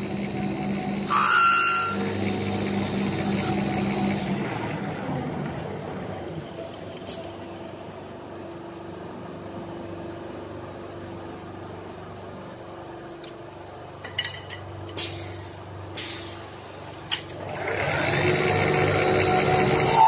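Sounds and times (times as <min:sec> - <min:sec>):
wood lathe humming: 0:00.0 - 0:06.0, 0:17.4 - 0:20.0.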